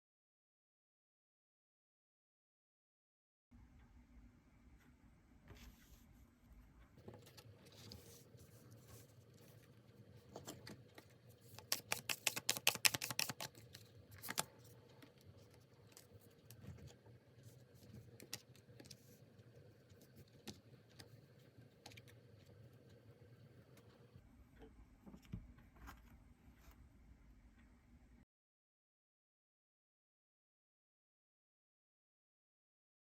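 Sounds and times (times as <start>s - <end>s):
cards being shuffled: 11.5s - 14.6s.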